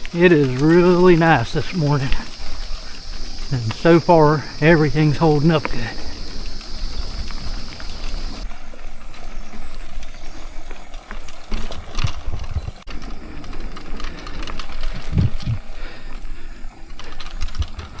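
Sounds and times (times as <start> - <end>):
high insect buzz: 0.0 - 8.4, 12.9 - 17.2
bike and rods rattling: 0.0 - 18.0
bike tyres rolling on dirt: 0.0 - 18.0
wind buffeting microphone: 0.0 - 18.0.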